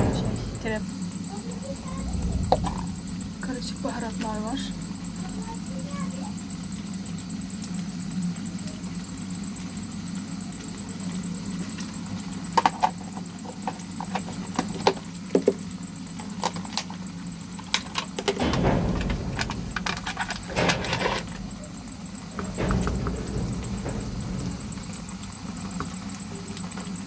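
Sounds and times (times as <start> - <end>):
low rumbling noise: 0.0 - 1.0, 1.6 - 5.4, 18.4 - 26.0
steady low hum: 0.0 - 5.9, 18.3 - 26.5.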